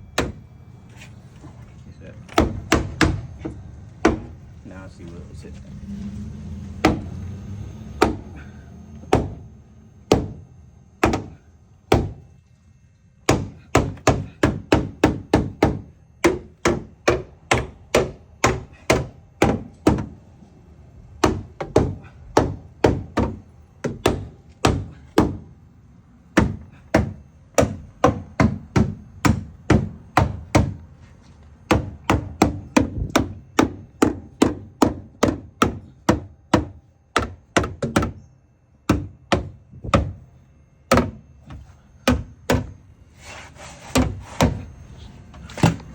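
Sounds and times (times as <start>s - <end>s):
hammer blows: 2.3s - 12.4s.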